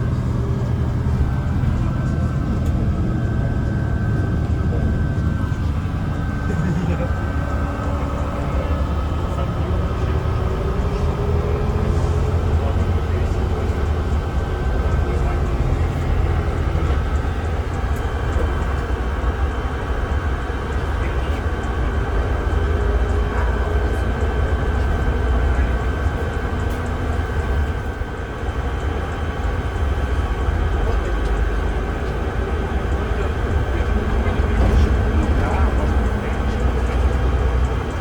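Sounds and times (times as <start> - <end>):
bus engine and road drone: 0.0 - 38.0
thin steady whine: 0.0 - 38.0.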